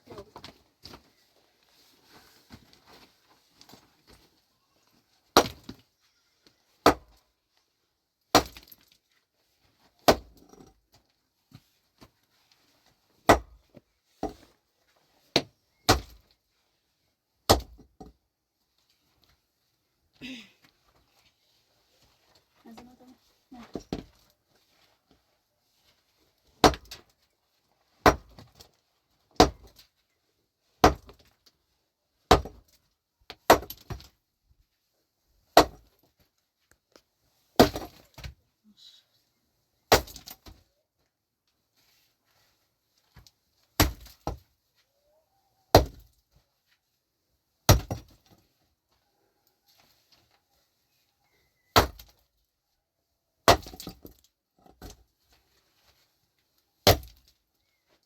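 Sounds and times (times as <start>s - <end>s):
pickaxe striking stony ground: 5.4s - 5.8s, 6.8s - 7.2s, 8.3s - 8.9s, 10.0s - 10.7s, 13.2s - 13.6s, 15.4s - 16.2s, 17.5s - 18.1s, 26.6s - 27.0s, 28.0s - 28.7s, 29.4s - 29.8s, 30.8s - 31.3s, 32.3s - 32.8s, 33.4s - 34.1s, 35.6s - 35.9s, 37.6s - 38.4s, 39.9s - 40.6s, 43.8s - 44.4s, 45.7s - 46.1s, 47.7s - 48.2s, 51.8s - 52.1s, 53.5s - 55.0s, 56.8s - 57.3s.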